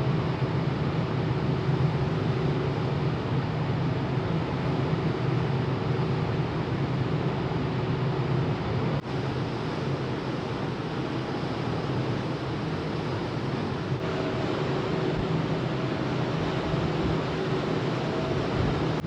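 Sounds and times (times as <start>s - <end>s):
ship engine drone: 0.0s - 19.0s
faint steady tones: 11.8s - 19.0s.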